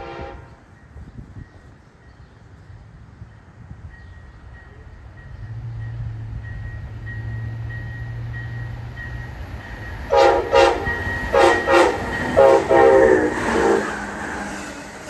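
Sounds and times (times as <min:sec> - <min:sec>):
locomotive air horn blasts: 0:00.0 - 0:00.6, 0:10.1 - 0:14.2
train rumble: 0:00.0 - 0:15.0.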